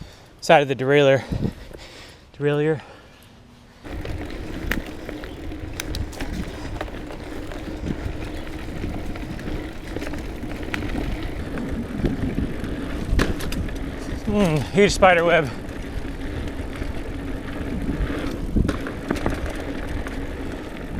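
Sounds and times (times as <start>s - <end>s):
tyre and wind rush: 3.8s - 19.4s
faint running hum: 3.9s - 11.4s
bike clattering over bumps: 3.9s - 11.5s.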